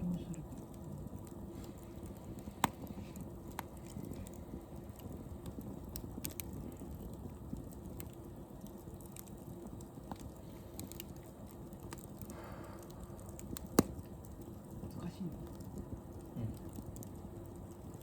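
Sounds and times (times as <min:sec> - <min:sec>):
campfire crackling: 0:00.0 - 0:18.0
low steady rumble: 0:00.0 - 0:18.0
sharp pops: 0:01.2 - 0:04.4, 0:11.8 - 0:14.4.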